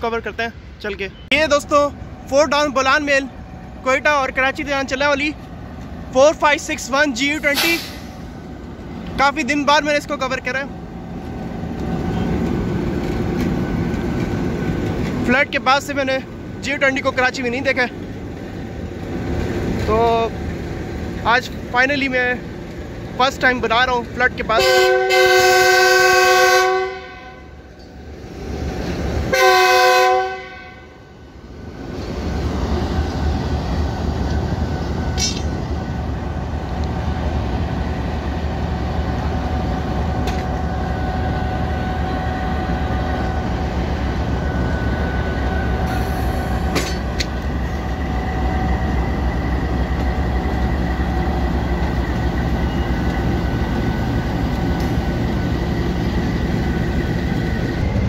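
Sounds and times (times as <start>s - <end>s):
train rumbling past: 0.0s - 58.0s
wheels clicking over rail joints: 11.5s - 15.4s
locomotive horn blast: 24.6s - 27.6s, 29.3s - 31.0s.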